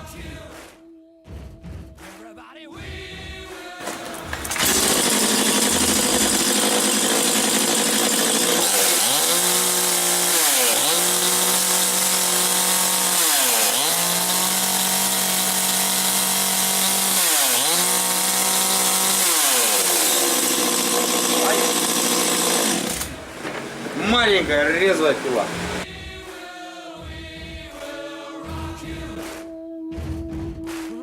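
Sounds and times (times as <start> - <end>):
chainsaw running at high revs: 3.8 - 23.2, 24.0 - 25.9.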